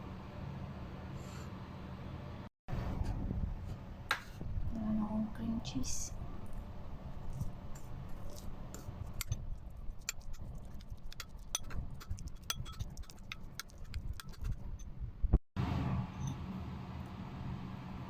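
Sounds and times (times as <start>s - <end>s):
utensils clinking against dish: 11.1s - 14.6s.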